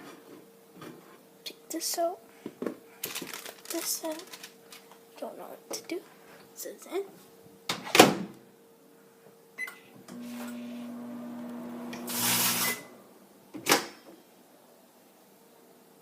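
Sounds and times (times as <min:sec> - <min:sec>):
microwave oven humming: 0:09.7 - 0:13.3
loud hissing burst: 0:12.0 - 0:12.9.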